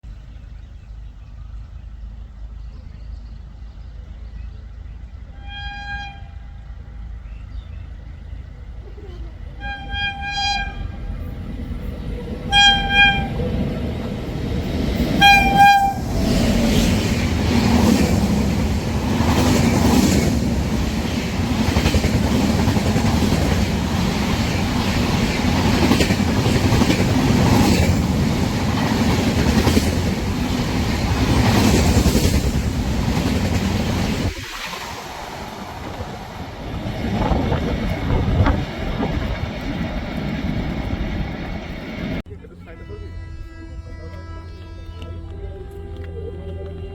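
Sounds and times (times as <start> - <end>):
train rumbling past: 0.1 - 45.0
train horn blasts: 5.3 - 6.6, 9.5 - 11.4, 12.4 - 13.7, 15.0 - 16.9, 42.6 - 46.8
wheels clacking over rail joints: 9.6 - 42.2.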